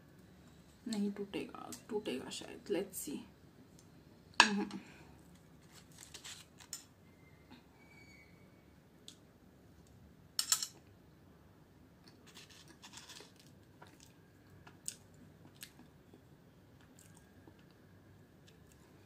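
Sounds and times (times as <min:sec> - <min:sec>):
faint chewing: 0:12.0 - 0:16.2, 0:16.8 - 0:17.8, 0:18.4 - 0:19.0.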